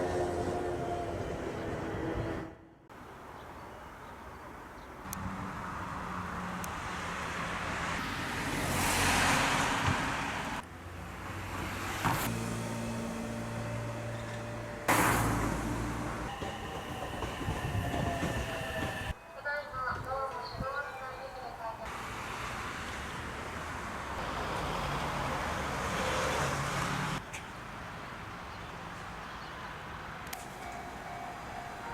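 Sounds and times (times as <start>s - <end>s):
train running past: 0.0s - 2.8s, 11.2s - 23.1s, 30.4s - 31.9s.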